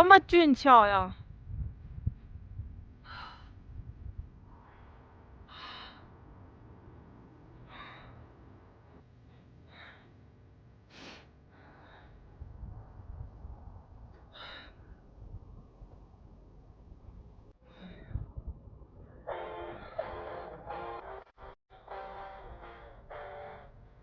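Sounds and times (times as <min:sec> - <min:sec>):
low rumble: 0:01.1 - 0:09.0, 0:12.0 - 0:19.3
person breathing hard: 0:04.5 - 0:06.6, 0:07.6 - 0:08.5, 0:09.2 - 0:10.2, 0:10.8 - 0:12.4, 0:14.2 - 0:15.0.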